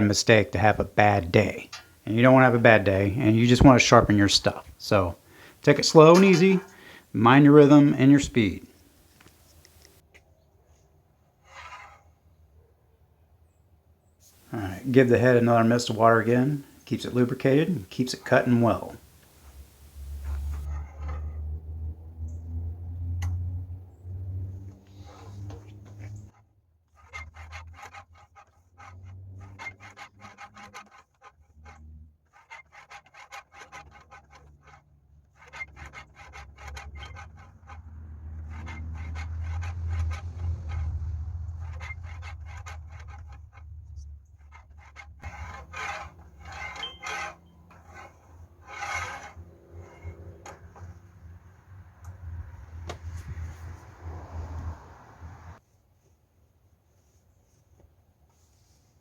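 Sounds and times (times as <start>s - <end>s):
sandpaper rubbing on blade edge: 14.8s - 20.7s, 44.6s - 50.9s.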